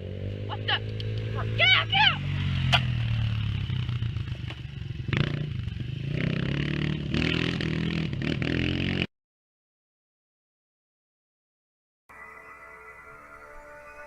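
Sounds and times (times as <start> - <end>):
small petrol engine revving: 0.0 - 9.1.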